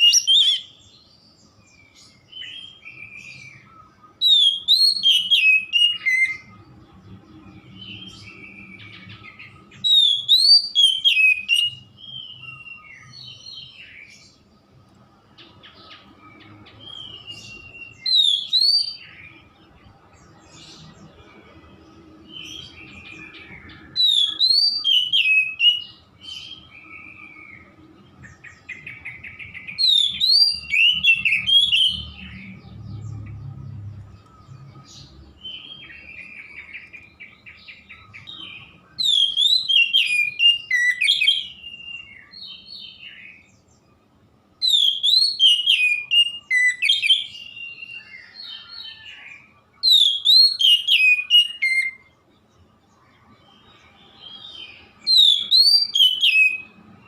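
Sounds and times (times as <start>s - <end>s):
bird singing whistled phrases: 0.0s - 1.0s, 1.8s - 6.6s, 7.8s - 14.1s, 16.2s - 19.4s, 22.4s - 27.8s, 28.4s - 32.6s, 35.4s - 43.5s, 44.6s - 52.1s, 53.6s - 56.9s.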